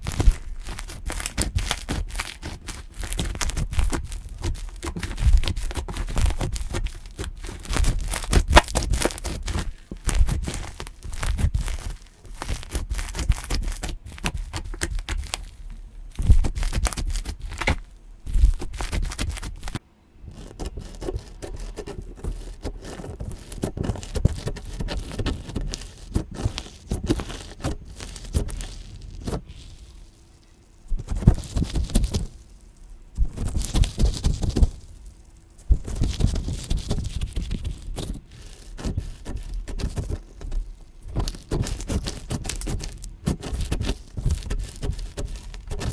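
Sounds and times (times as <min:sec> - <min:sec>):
hands squishing slime: 0:00.0 - 0:45.9
slime crackling and popping: 0:00.0 - 0:45.9.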